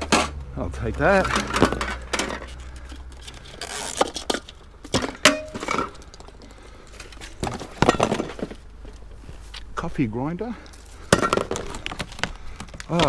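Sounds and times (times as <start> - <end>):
metal scrap knocks and clinks: 0.0 - 0.5, 1.2 - 6.1.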